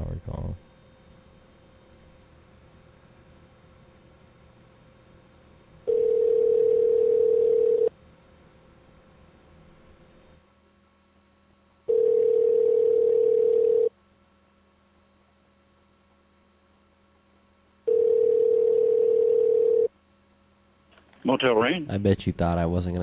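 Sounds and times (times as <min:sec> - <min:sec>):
telephone ringback tone: 0:05.9 - 0:07.9, 0:11.9 - 0:13.9, 0:17.9 - 0:19.9.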